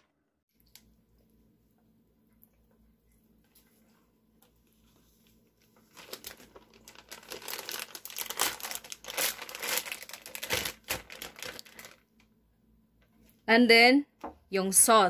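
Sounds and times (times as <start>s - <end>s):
plastic bag crinkling: 5.6s - 12.2s.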